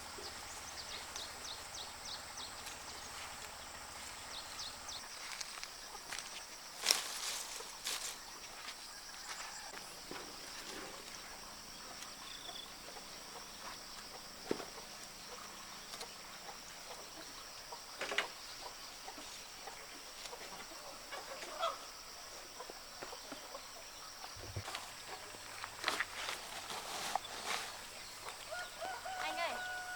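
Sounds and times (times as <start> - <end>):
chickens clucking: 10.1 - 29.8.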